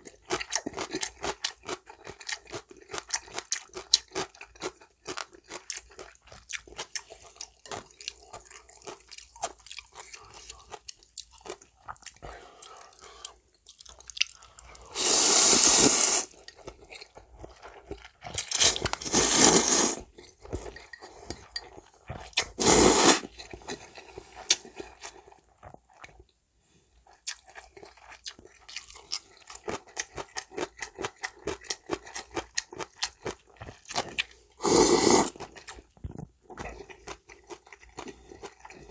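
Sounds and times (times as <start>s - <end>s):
wet chewing: 0.0s - 15.0s, 27.0s - 38.9s
loud slurping of noodles: 14.8s - 16.4s, 19.0s - 20.1s, 22.5s - 23.3s, 34.6s - 35.4s.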